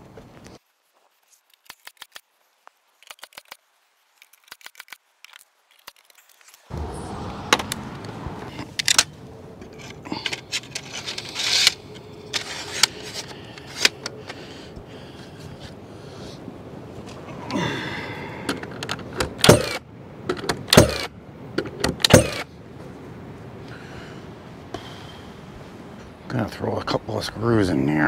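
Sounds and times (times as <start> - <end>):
sharp loud nailing bangs: 19.4 - 19.8, 22.0 - 22.5.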